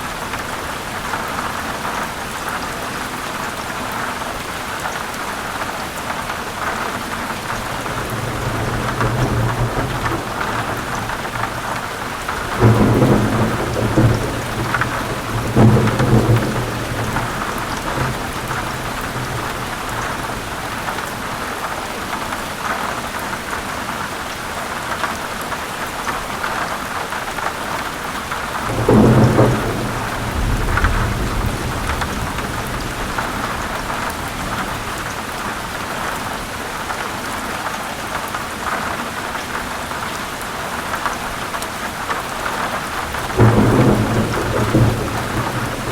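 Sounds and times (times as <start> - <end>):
heavy rain falling: 0.0 - 45.9
thunder rumbling: 7.4 - 20.8, 28.6 - 35.8, 42.9 - 45.9.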